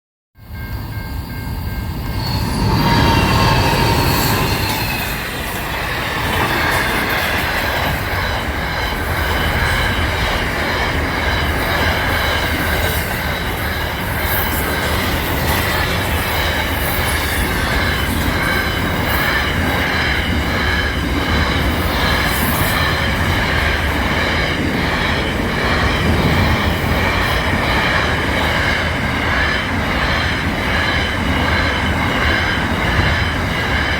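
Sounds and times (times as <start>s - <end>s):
train rumbling on rails: 0.4s - 33.9s
wheels squealing on track: 1.4s - 7.5s.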